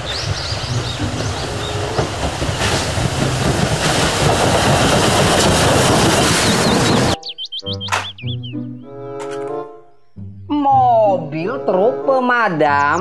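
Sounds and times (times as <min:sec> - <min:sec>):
steam locomotive exhaust: 0:00.0 - 0:07.2
wheels clattering on rails: 0:00.0 - 0:07.2.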